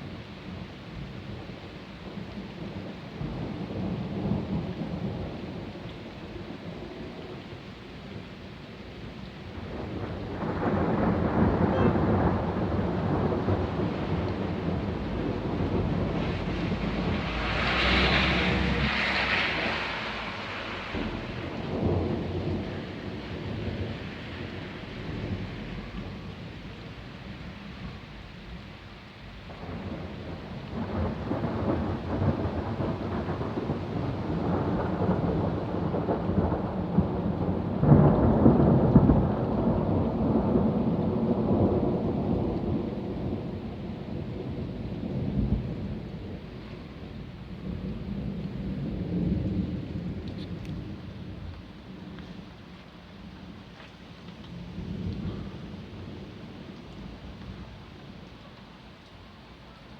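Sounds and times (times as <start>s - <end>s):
thunder rumbling and crackling: 0.0s - 59.9s
rain hissing: 9.3s - 36.5s.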